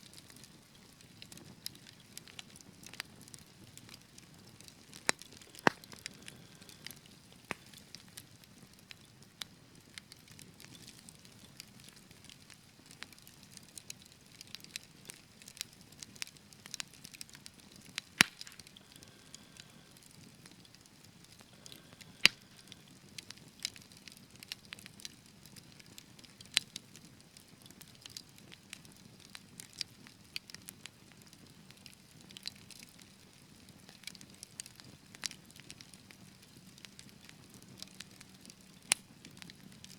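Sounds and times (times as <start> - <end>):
wood fire crackling: 0.0 - 39.9
sharp pops of fire: 0.1 - 27.0, 34.0 - 39.9.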